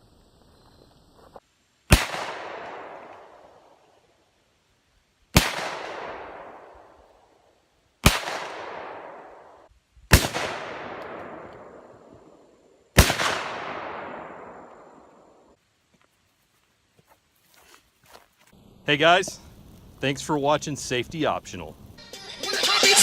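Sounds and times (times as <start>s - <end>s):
loud explosive blasts: 13.0s - 14.7s.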